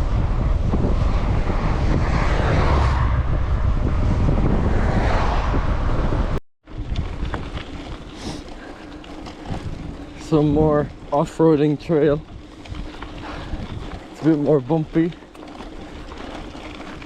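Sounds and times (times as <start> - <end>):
mountain bike trail noise: 0.0 - 17.0
wind buffeting on microphone: 0.0 - 17.0
small clicks and rattles: 6.8 - 17.0.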